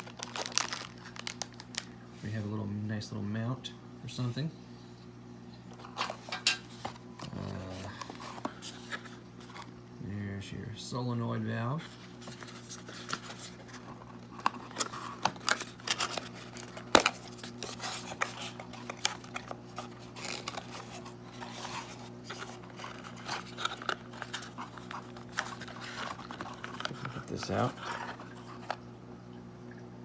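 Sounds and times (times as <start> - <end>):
packaging rustling and crinkling: 0.0 - 2.5, 5.7 - 9.7, 11.8 - 28.9
steady low hum: 0.0 - 30.0.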